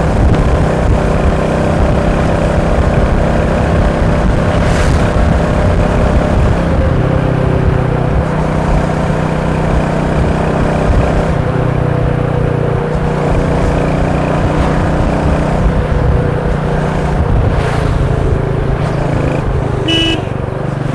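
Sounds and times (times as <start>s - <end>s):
motorcycle engine running: 0.0s - 20.9s
low rumble: 2.8s - 8.2s, 11.3s - 18.9s.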